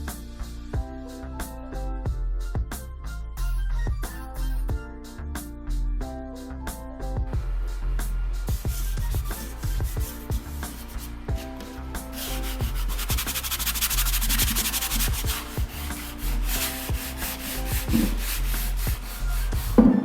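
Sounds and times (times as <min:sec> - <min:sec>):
background music: 0:00.0 - 0:20.0
hand sanding wood: 0:08.6 - 0:20.0.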